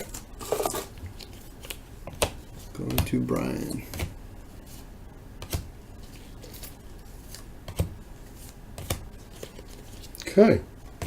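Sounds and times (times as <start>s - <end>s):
cards rustling: 5.4s - 10.3s.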